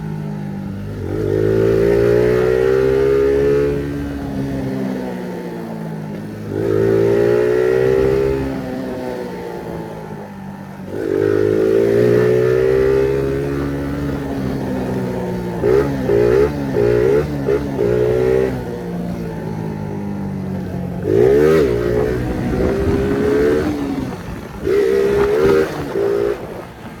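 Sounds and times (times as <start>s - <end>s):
moped engine accelerating: 0.0s - 27.0s.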